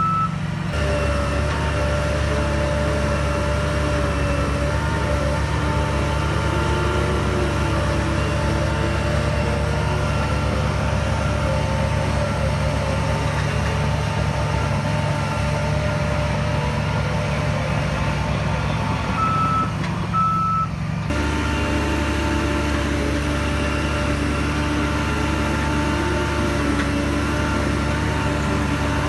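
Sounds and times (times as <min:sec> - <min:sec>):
reversing alarm beeping: 0:00.0 - 0:00.4, 0:19.2 - 0:20.7
heavy diesel machinery running: 0:00.0 - 0:29.0.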